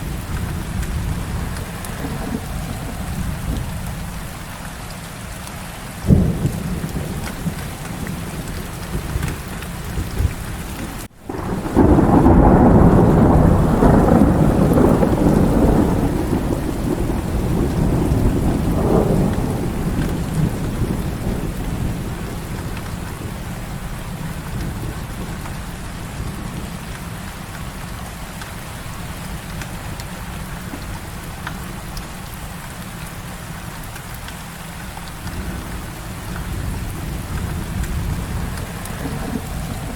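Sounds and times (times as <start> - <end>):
rolling thunder rumble: 0.0 - 4.6, 6.0 - 28.0, 35.0 - 39.9
heavy rain falling: 0.0 - 39.9
sharp thunder crack: 11.3 - 22.8, 36.5 - 39.9.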